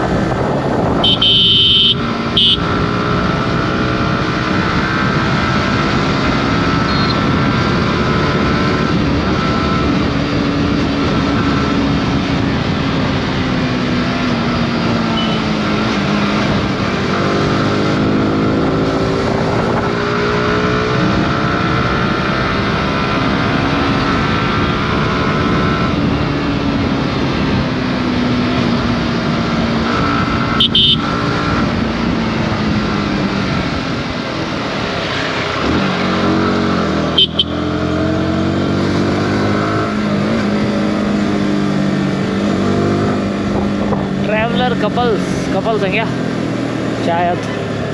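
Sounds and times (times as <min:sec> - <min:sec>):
motorcycle engine revving: 0:00.0 - 0:47.9
wind and road noise: 0:00.0 - 0:47.9.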